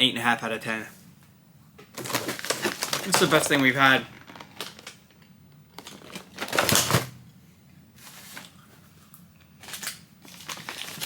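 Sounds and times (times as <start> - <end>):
snack packaging rustling: 1.9 - 7.1, 8.0 - 11.0.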